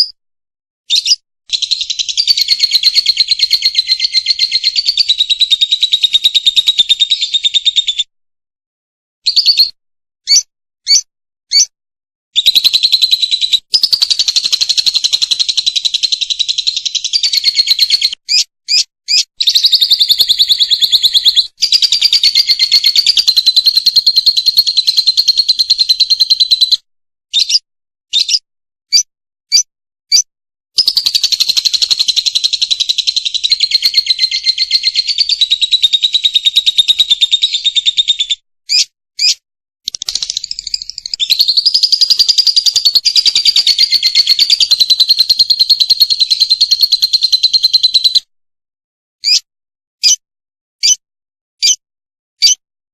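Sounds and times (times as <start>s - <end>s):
lovebird chattering trills: 0.9s - 7.6s, 12.4s - 26.8s, 30.8s - 48.2s
lovebird chirps: 0.9s - 8.0s, 9.3s - 11.7s, 12.4s - 48.2s, 49.2s - 49.4s, 51.6s - 51.8s, 52.4s - 52.6s.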